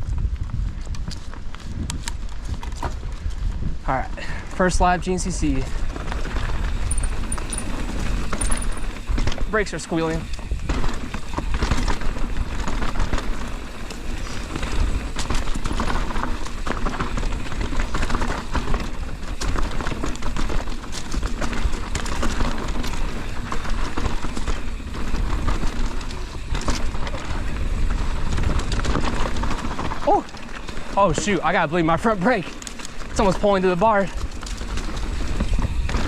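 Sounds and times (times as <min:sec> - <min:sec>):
wind on microphone: 0:00.0 - 0:09.1
bike rattling: 0:00.0 - 0:36.0
bike tyres rolling over rocks: 0:00.0 - 0:36.0.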